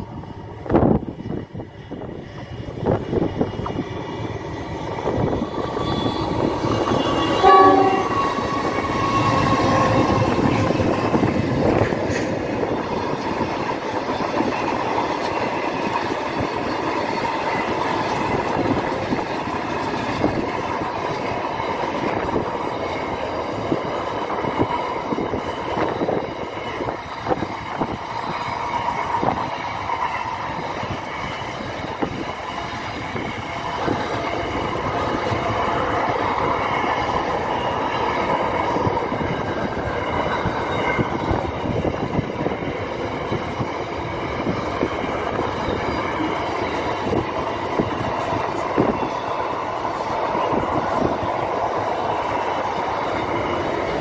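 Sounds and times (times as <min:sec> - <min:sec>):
train wheels rumbling and clattering: 0:00.0 - 0:54.0
train horn blast: 0:06.8 - 0:10.4.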